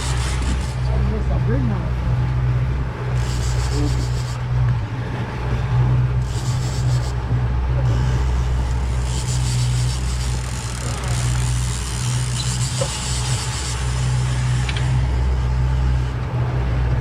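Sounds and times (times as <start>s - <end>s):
boat engine humming: 0.0s - 17.0s
wind and water hiss: 2.5s - 11.7s.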